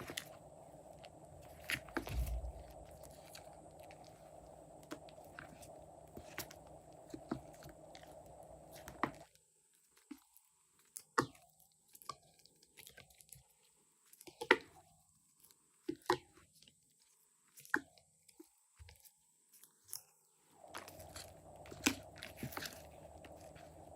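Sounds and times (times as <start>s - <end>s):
steady hum: 0.0s - 9.2s, 20.6s - 23.9s.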